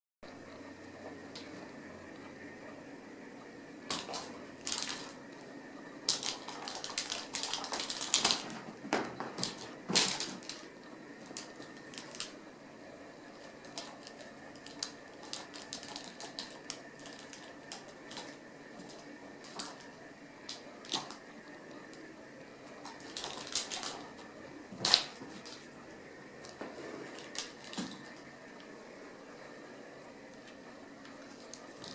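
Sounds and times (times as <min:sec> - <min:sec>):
kittens scuffling on hard floor: 0:06.1 - 0:12.4, 0:26.5 - 0:28.3.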